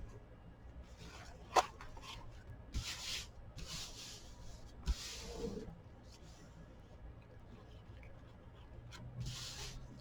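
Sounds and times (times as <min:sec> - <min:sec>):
paper rubbing on tabletop: 0:02.7 - 0:06.5, 0:09.2 - 0:10.0.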